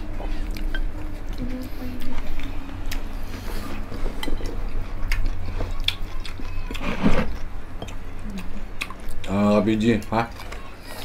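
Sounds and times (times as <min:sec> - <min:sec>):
chewing and crunchy bites: 0:00.0 - 0:11.0
low voiced sound: 0:01.4 - 0:02.7.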